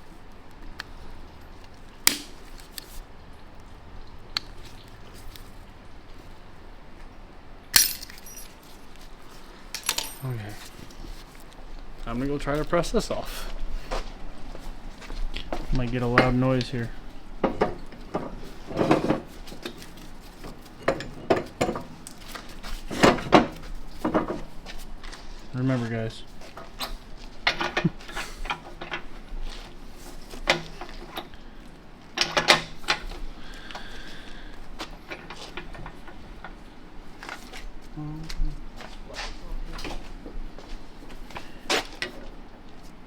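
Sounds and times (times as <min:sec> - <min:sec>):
metal clinks: 0:07.8 - 0:08.6, 0:09.8 - 0:10.5
metal parts clanking: 0:07.8 - 0:08.6, 0:09.8 - 0:10.5.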